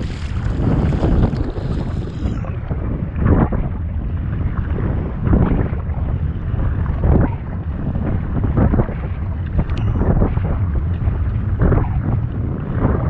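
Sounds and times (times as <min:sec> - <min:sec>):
water splashing: 0:00.0 - 0:03.8
wind buffeting microphone: 0:00.0 - 0:13.0.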